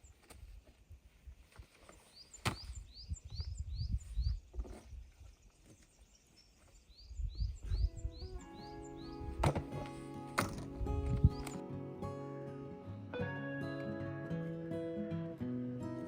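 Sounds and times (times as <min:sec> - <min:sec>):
small bird chirping: 0:01.9 - 0:09.4.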